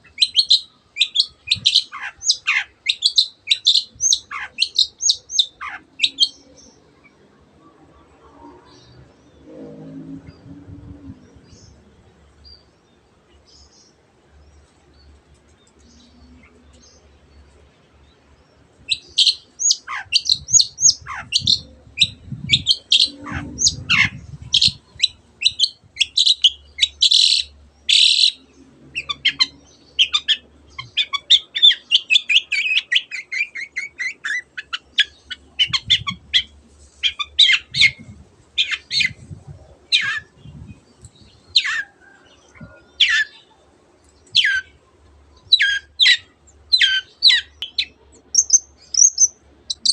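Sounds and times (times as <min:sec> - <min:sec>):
shrike singing sharp chirps: 0:48.3 - 0:49.9.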